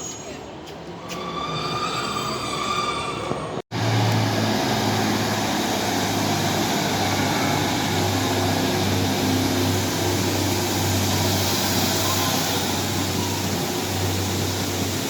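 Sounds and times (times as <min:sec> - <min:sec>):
diesel train engine running: 0:03.7 - 0:15.0.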